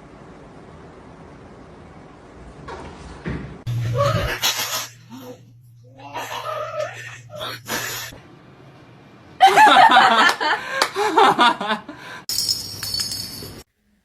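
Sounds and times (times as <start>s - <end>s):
person laughing: 3.9s - 8.1s, 9.4s - 12.0s.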